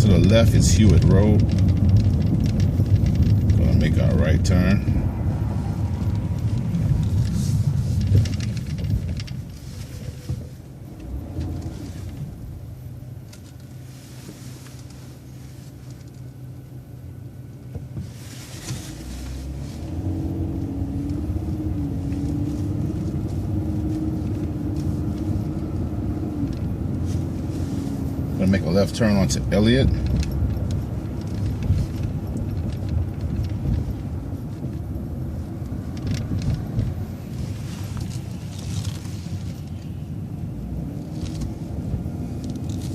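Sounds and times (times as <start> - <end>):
steady whine: 0.0 - 17.8
bus engine and road rumble: 0.0 - 42.9.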